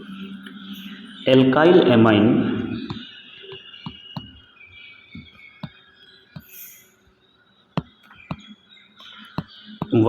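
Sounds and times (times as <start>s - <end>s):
marker tapping on a board: 3.8s - 4.4s, 5.2s - 5.8s, 6.4s - 6.6s, 7.8s - 8.5s, 9.4s - 10.0s.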